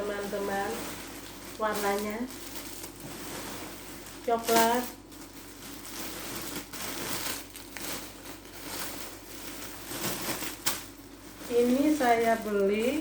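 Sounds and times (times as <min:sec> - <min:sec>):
clothing and packaging rustling: 0:00.0 - 0:13.0.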